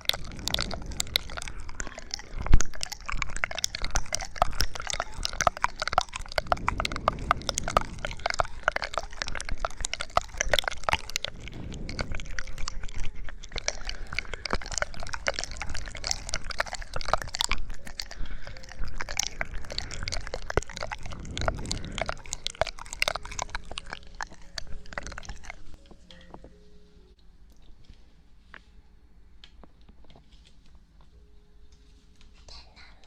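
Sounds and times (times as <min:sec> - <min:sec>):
wet crackling and clicking: 0:00.0 - 0:26.3.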